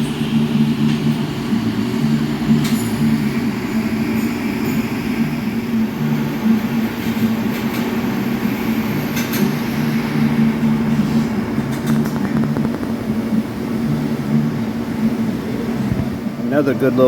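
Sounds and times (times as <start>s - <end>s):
welding arc buzzing and hissing: 0.0s - 14.6s
lower buzz: 8.2s - 16.3s
faint crackles: 11.0s - 13.4s.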